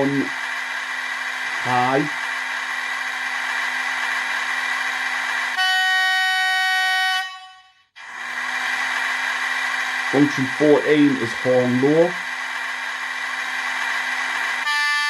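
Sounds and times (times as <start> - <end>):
locomotive cooling fan running: 0.0 - 5.6, 8.0 - 15.0
high-note locomotive horn: 5.5 - 8.0, 14.6 - 15.0.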